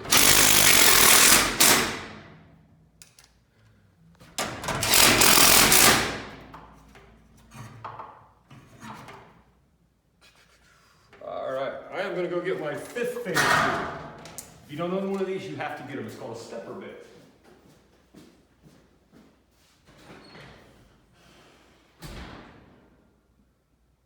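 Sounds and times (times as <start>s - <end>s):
impact driver driving screws: 0.0s - 2.2s, 4.7s - 6.3s.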